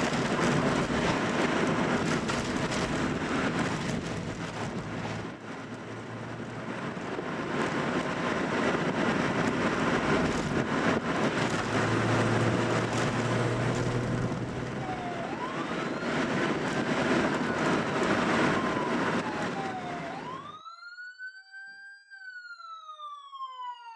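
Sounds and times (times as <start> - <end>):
car engine cruising: 0.0 - 20.5
road noise: 0.0 - 20.6.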